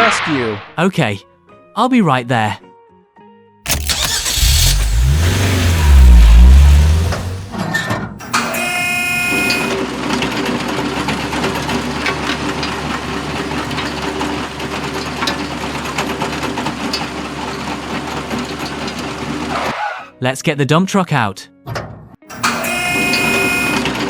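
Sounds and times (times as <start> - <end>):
small motor running: 3.7 - 7.6, 8.2 - 19.7, 22.3 - 24.0
rapid clicking rattle: 3.7 - 7.7, 9.5 - 19.7
short pitched tone: 22.3 - 23.9.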